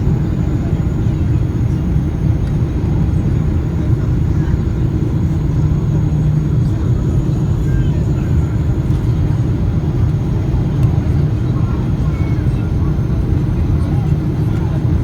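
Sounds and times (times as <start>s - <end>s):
airliner engines rumbling: 0.0s - 15.0s.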